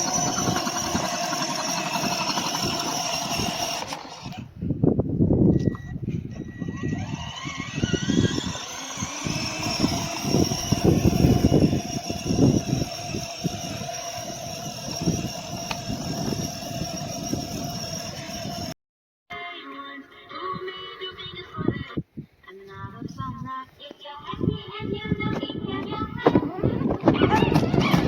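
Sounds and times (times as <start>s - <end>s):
plastic wheels rumbling on ground: 0.0s - 4.5s, 6.7s - 18.7s, 25.3s - 28.0s
electric motor whining: 0.0s - 4.6s, 5.7s - 18.8s.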